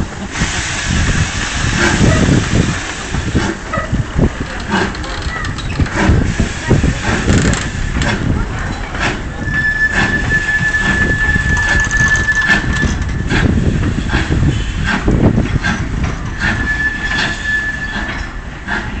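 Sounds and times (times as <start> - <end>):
low train rumble: 0.0 - 19.0
train wheels knocking over rail joints: 3.1 - 9.3
high wheel squeal: 9.4 - 13.3, 16.3 - 18.4.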